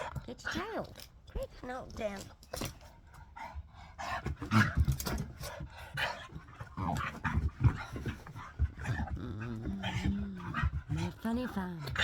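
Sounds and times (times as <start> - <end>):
dog panting: 2.6 - 12.0.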